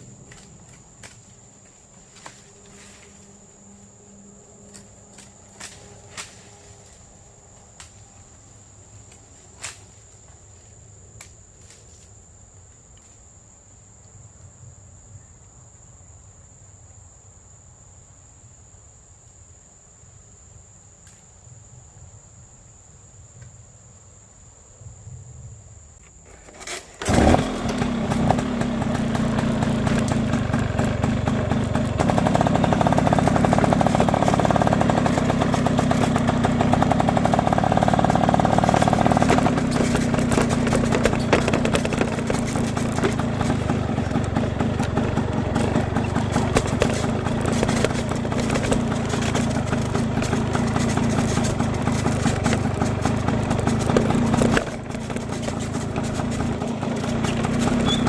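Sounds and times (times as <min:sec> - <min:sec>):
high insect buzz: 0:00.0 - 0:15.0, 0:15.7 - 0:58.0
small petrol engine running: 0:26.3 - 0:58.0.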